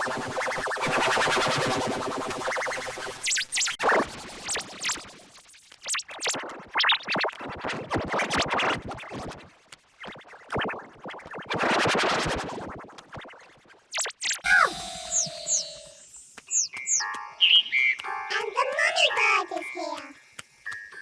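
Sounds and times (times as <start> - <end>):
cartoon sound effects: 14.4 - 17.1, 18.3 - 20.1.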